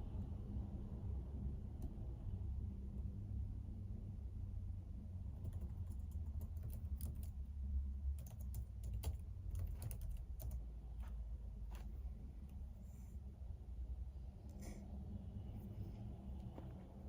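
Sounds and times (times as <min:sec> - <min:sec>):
low steady hum: 0:00.0 - 0:17.0
computer keyboard typing: 0:05.3 - 0:07.4, 0:08.1 - 0:11.1.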